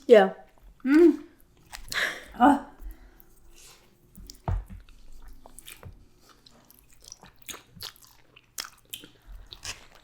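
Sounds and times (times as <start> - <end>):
person chewing crunchy food: 3.2 - 10.0.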